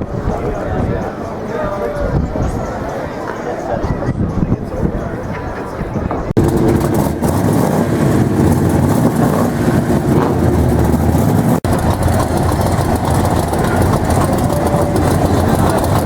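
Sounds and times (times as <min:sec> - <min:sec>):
vehicle engine running: 0:06.4 - 0:16.0.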